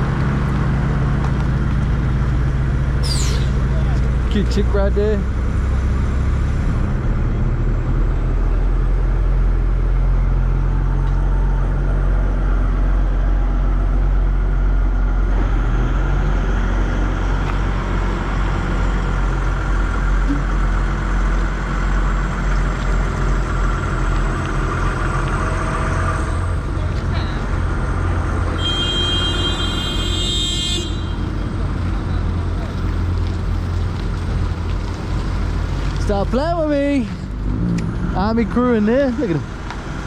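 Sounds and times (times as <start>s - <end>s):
vehicle engine revving: 15.0s - 40.0s.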